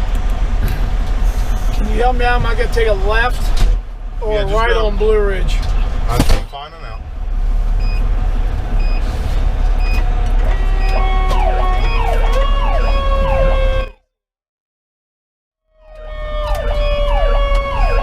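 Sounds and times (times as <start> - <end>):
diesel engine running: 0.0 - 13.9
fire engine sirens wailing: 8.0 - 14.0, 15.7 - 18.0.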